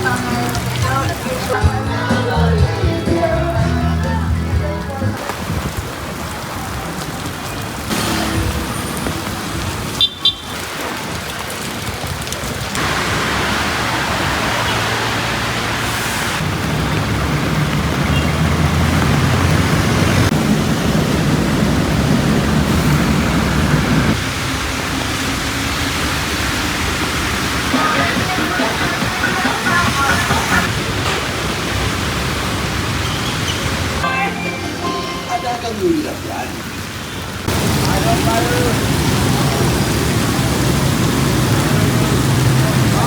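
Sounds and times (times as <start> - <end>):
heavy rain hiss: 5.1 - 43.0
vehicle engines running: 6.8 - 34.1, 36.6 - 43.0
vehicle passing close: 12.8 - 30.9.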